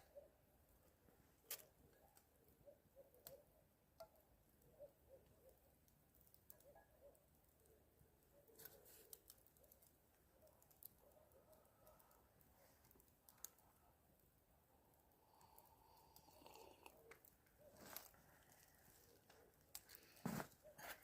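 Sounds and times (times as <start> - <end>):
faint clicks and ticks: 1.4 - 21.0.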